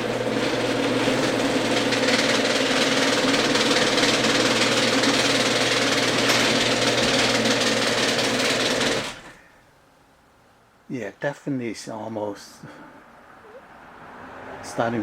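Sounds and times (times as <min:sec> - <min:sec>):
garage door opener motor hum: 0:00.0 - 0:09.4
fast mechanical clicking: 0:01.7 - 0:09.3.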